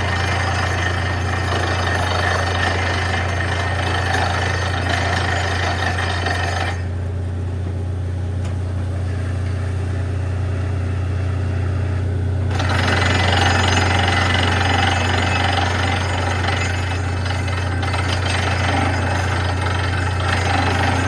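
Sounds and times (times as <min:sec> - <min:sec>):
drilling rig rattling and hammering: 0:00.0 - 0:06.9, 0:12.5 - 0:21.0
low engine drone: 0:05.7 - 0:21.0.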